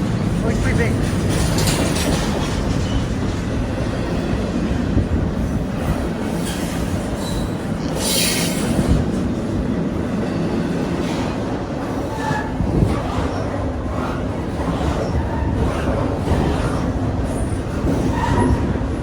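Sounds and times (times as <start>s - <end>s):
train wheels rumbling: 0.0s - 19.0s
clicks over rail joints: 0.6s - 3.6s
wheel squeals: 14.8s - 18.8s.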